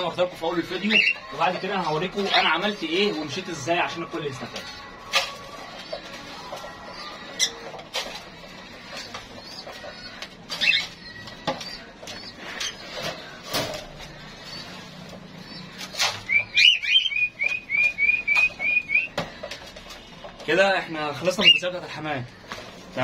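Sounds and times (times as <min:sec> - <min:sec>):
rapid high bird chirps: 0:14.1 - 0:19.2
bird clicks and chirps: 0:15.5 - 0:20.1.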